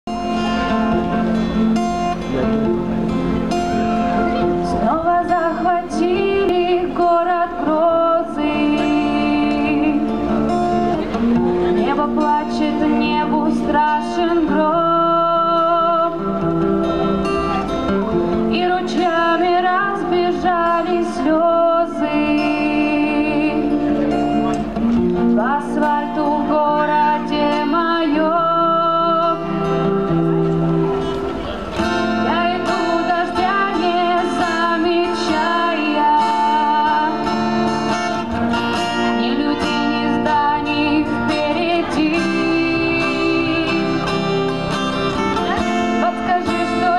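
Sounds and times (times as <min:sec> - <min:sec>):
acoustic guitar strumming: 0:00.1 - 0:46.9
woman singing: 0:04.4 - 0:10.6, 0:11.4 - 0:16.7, 0:18.3 - 0:23.8, 0:25.2 - 0:30.2, 0:32.0 - 0:44.7, 0:45.4 - 0:46.9.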